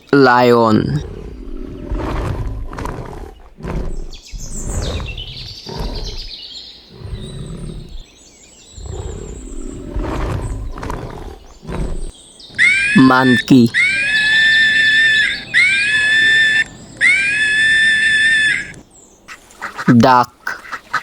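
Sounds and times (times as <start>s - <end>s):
birds chirping: 0.0s - 21.0s
lion roaring and grunting: 0.7s - 18.8s.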